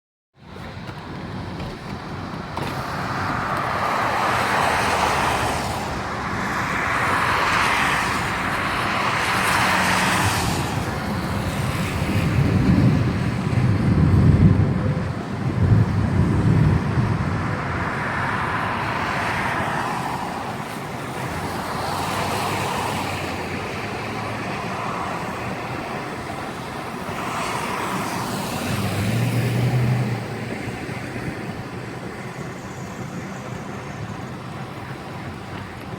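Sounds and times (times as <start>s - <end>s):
storm wind gusts: 0.5s - 35.9s
rain: 2.8s - 5.9s, 6.8s - 14.7s, 15.3s - 30.8s
deep thunder rumbles: 10.1s - 17.8s.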